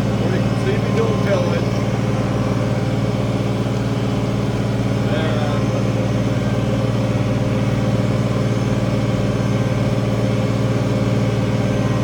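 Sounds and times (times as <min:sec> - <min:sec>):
diesel tractor engine under load: 0:00.0 - 0:12.0.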